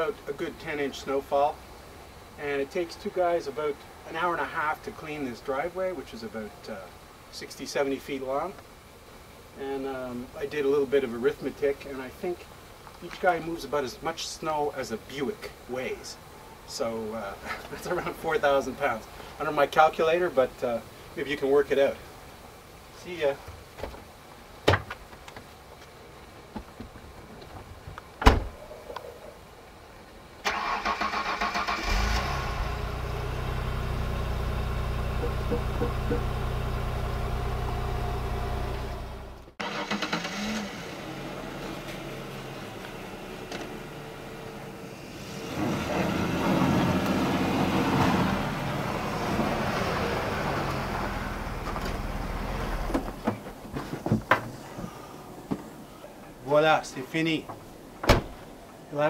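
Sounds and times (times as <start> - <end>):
vehicle engine running: 32.5 - 39.6.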